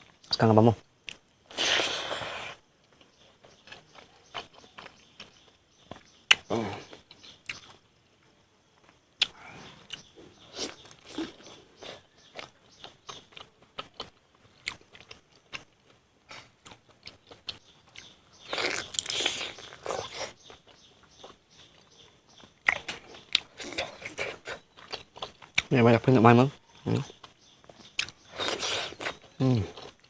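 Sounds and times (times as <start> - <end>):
biting and chewing food: 1.0 - 7.9, 8.8 - 25.7, 26.8 - 30.0
small crunches: 8.8 - 25.8, 26.9 - 30.0.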